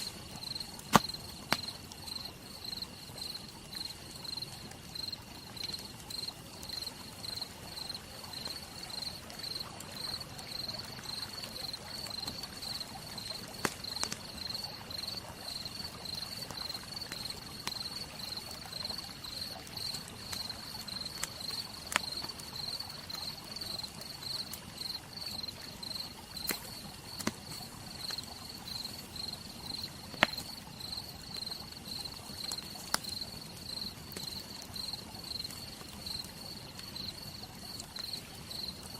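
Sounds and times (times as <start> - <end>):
campfire crackling and popping: 0.0 - 38.9
cricket chirping: 0.0 - 38.9.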